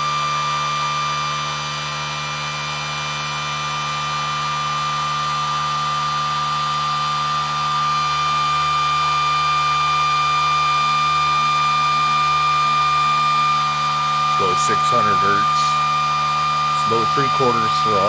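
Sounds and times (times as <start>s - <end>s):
electric motor high whine: 0.0s - 18.0s.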